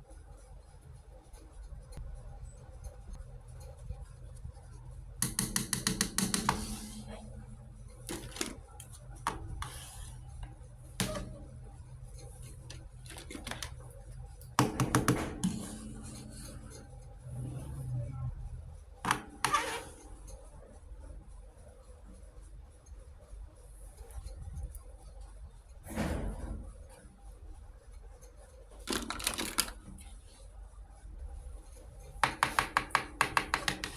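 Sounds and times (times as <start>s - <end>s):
steady low hum: 0.0s - 28.8s
plastic toy pieces handled: 12.6s - 13.9s, 28.8s - 29.9s
clattering plastic clicks: 28.8s - 29.9s.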